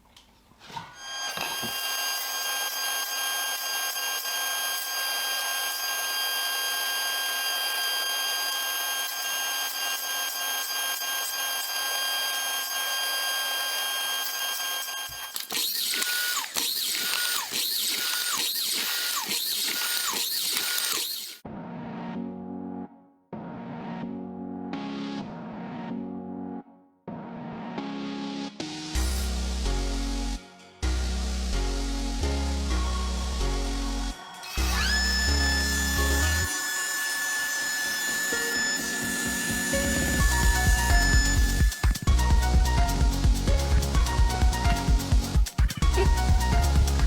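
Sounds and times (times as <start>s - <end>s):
power tool whining: 0.9s - 21.4s, 34.1s - 42.2s.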